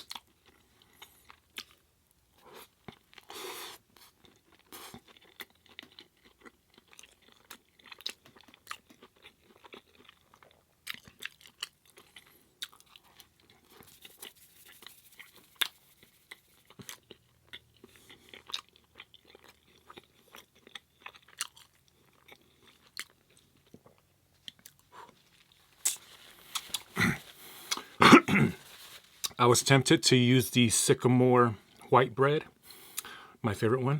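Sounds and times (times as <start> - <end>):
chewing with wet mouth clicks: 0.0 - 1.8, 4.0 - 14.0, 15.6 - 25.2, 25.8 - 27.9
throat clearing: 26.9 - 28.7.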